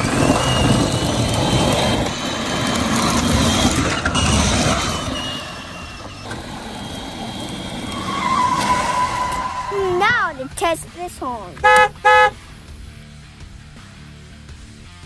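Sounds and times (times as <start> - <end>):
toy truck electric motor whine: 0.0 - 9.6
tyres rumbling on ground: 0.0 - 13.0.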